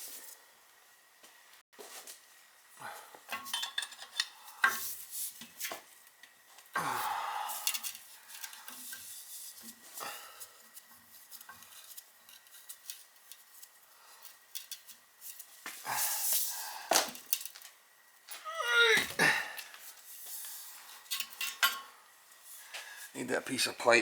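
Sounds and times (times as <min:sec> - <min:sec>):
metal tools clinking on pipes: 0:03.3 - 0:04.8, 0:21.0 - 0:21.9.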